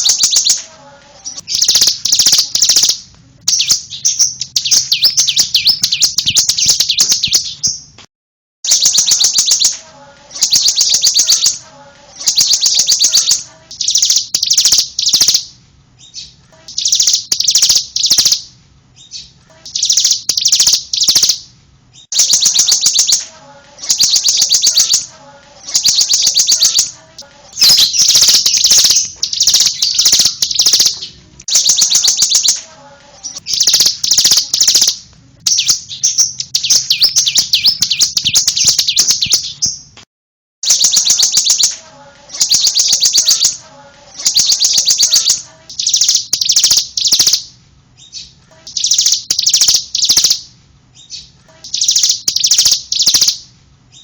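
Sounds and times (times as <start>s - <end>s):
bird singing fast high trills: 0.0s - 0.6s, 1.2s - 7.8s, 8.7s - 11.6s, 12.2s - 15.5s, 16.1s - 18.5s, 19.1s - 21.4s, 22.2s - 26.9s, 27.6s - 32.6s, 33.2s - 39.8s, 40.6s - 43.6s, 44.2s - 50.4s, 51.1s - 53.4s.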